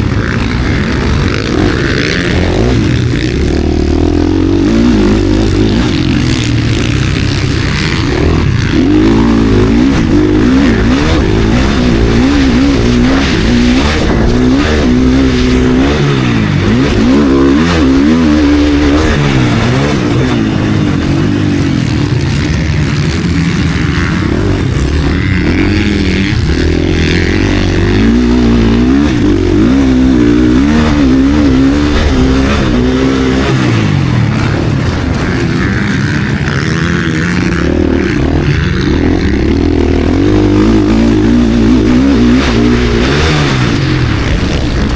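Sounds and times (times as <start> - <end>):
motocross bike engine revving: 0.0 - 44.9.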